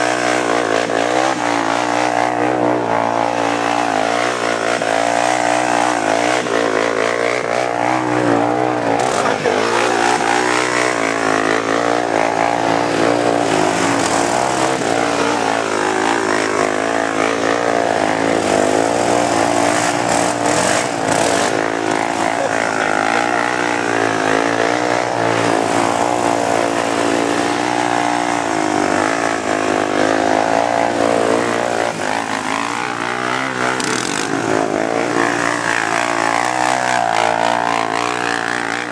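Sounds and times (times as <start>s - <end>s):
vehicle engines revving: 0.0s - 38.9s.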